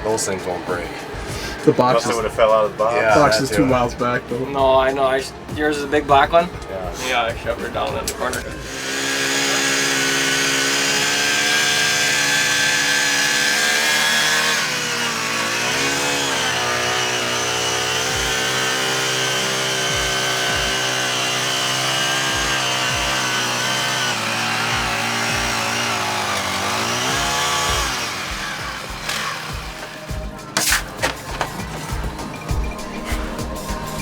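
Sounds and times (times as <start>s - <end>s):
small petrol engine buzzing: 8.3s - 34.0s.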